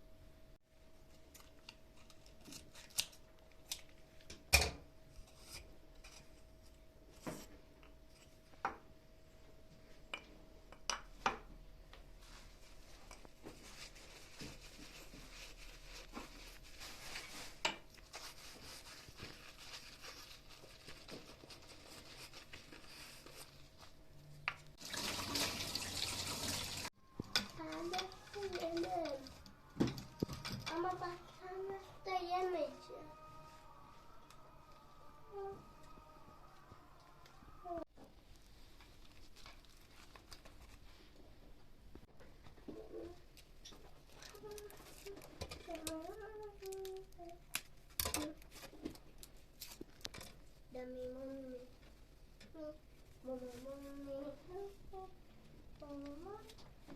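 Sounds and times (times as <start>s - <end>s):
water running from tap: 24.8s - 26.9s
items clicking and knocking: 27.1s - 31.1s, 47.6s - 50.4s.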